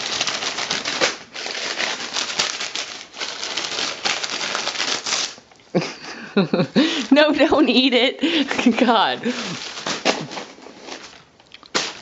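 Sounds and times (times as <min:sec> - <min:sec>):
paper crinkling and rustling: 0:00.0 - 0:05.5, 0:08.5 - 0:12.0.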